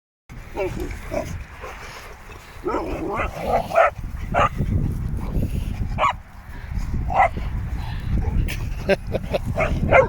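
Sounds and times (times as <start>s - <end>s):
dogs yipping and barking: 0.5s - 1.4s, 2.6s - 4.6s, 6.0s - 6.2s, 7.1s - 7.4s, 9.5s - 10.0s.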